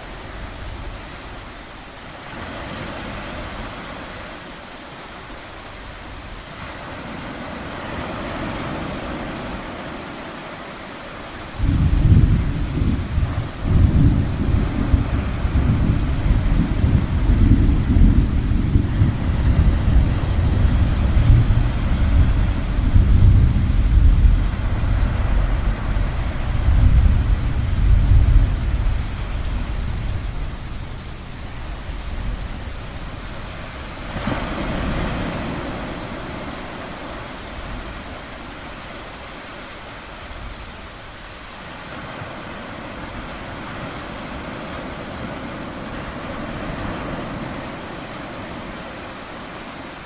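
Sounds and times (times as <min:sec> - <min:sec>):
surf washing: 0:00.0 - 0:50.0
wave surging and receding: 0:00.0 - 0:50.0
thunder rumbling: 0:11.6 - 0:38.0.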